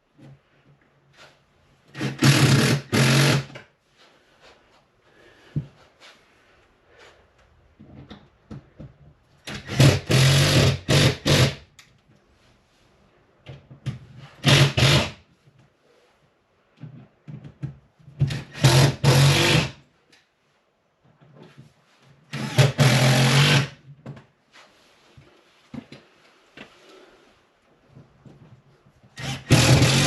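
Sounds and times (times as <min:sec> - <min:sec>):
power drill driving screws: 0:01.9 - 0:03.6, 0:09.5 - 0:11.6, 0:14.4 - 0:15.2, 0:18.3 - 0:19.7, 0:22.3 - 0:23.7, 0:29.2 - 0:30.0.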